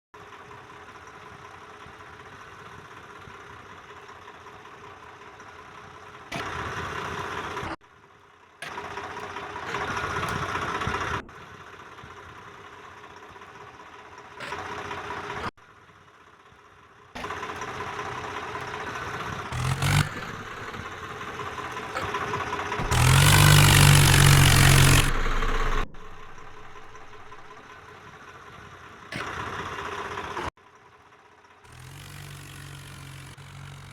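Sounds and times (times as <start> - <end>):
tractor engine revving: 8.6 - 12.1, 17.2 - 27.8, 31.7 - 33.9.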